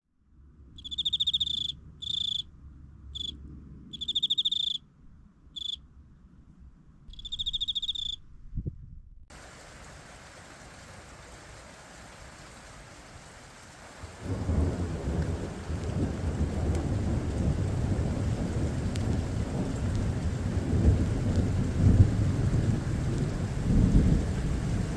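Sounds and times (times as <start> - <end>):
insect chirping: 0.8 - 4.9, 5.5 - 5.9, 7.1 - 8.3
thunder rumble: 8.6 - 24.9
rain hiss: 9.3 - 24.9.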